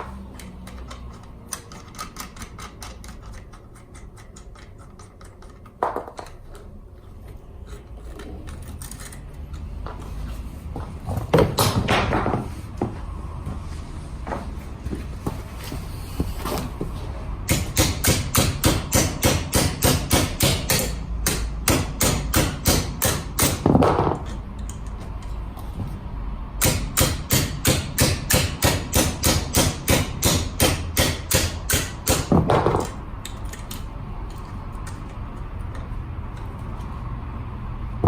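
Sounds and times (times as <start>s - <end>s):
hammer striking metal wheel: 17.4s - 24.4s, 26.6s - 33.0s.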